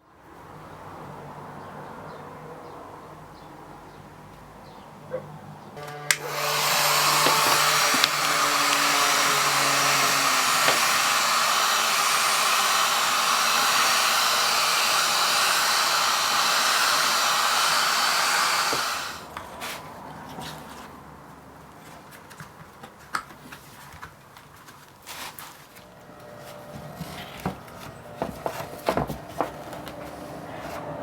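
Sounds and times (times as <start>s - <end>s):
rush of blowing air: 5.8s - 19.3s.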